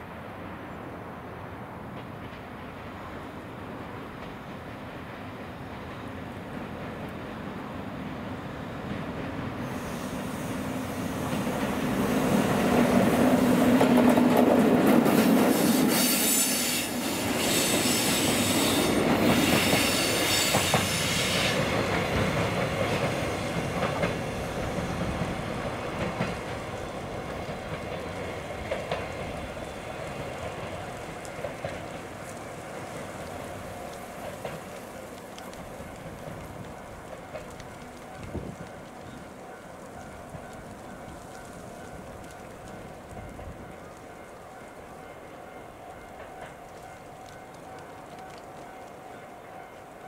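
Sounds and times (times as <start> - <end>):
electric locomotive humming: 0.3 - 50.0
train wheels clattering on rail joints: 1.9 - 2.9, 8.8 - 50.0
train wheels squealing: 9.6 - 11.4, 15.5 - 22.1.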